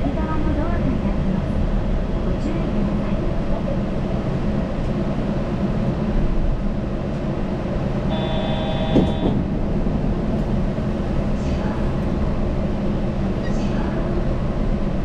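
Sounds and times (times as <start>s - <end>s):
train tyres rumbling on guideway: 0.0s - 15.0s
multi-pitch tone: 8.1s - 9.4s.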